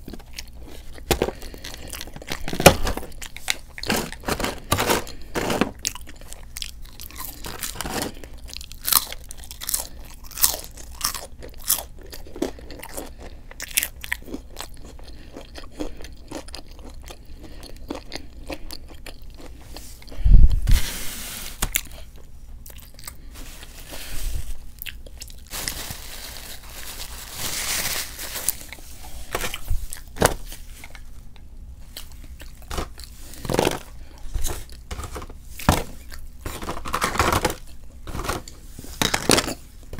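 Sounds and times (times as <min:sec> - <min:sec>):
crunchy bites: 0:00.0 - 0:19.6.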